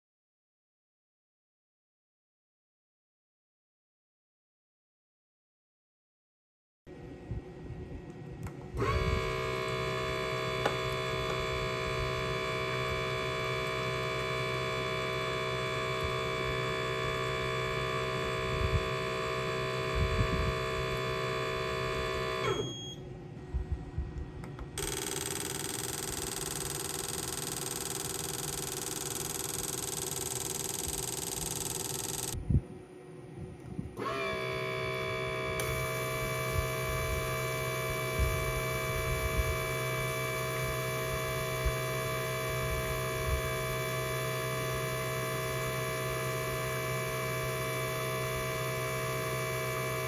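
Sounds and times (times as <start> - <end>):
second machine hum: 6.9 - 50.0
machine humming: 7.1 - 50.0.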